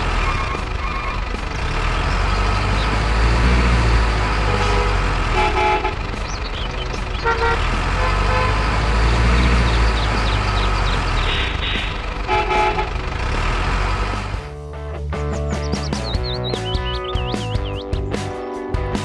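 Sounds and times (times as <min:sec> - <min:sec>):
truck engine rumbling: 0:00.0 - 0:19.0
multi-tone horn toots: 0:03.3 - 0:06.3, 0:07.1 - 0:09.8, 0:11.3 - 0:14.3.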